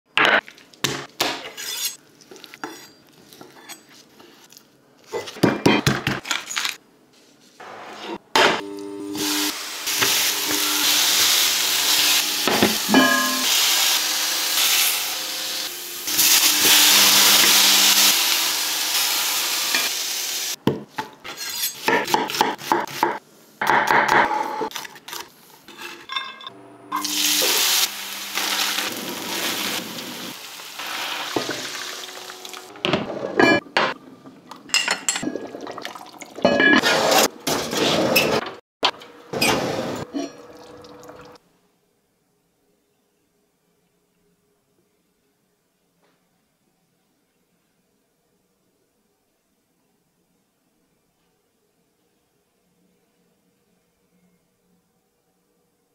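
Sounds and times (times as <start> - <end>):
steak searing sizzle: 9.1 - 20.6, 27.0 - 32.7
onions sizzling in a frying pan: 9.2 - 20.6, 27.0 - 32.7.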